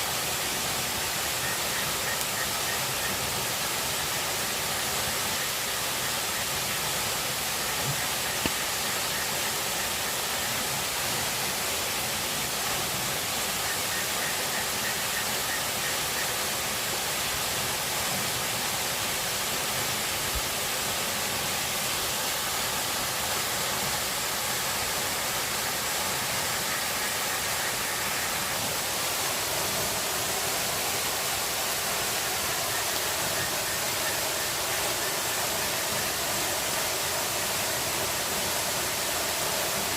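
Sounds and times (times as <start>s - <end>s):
water rushing: 0.0s - 39.9s
faint tick: 7.8s - 8.6s.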